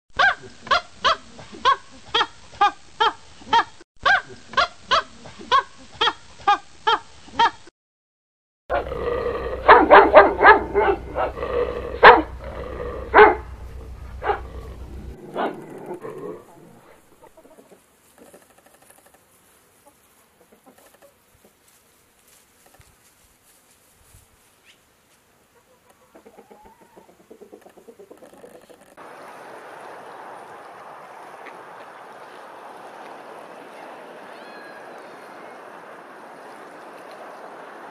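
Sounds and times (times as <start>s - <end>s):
dog barking and yipping: 0.2s - 7.6s, 9.6s - 12.4s, 13.0s - 16.0s.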